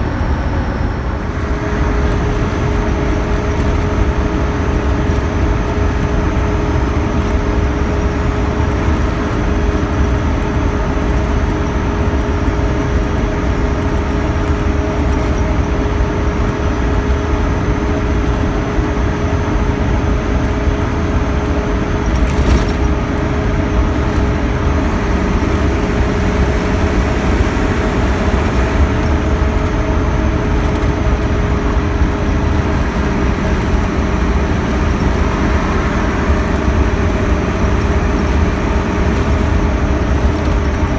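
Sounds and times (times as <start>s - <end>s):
diesel engine drone: 0.0s - 40.9s
road noise: 0.0s - 40.9s
steady whine: 22.2s - 40.9s.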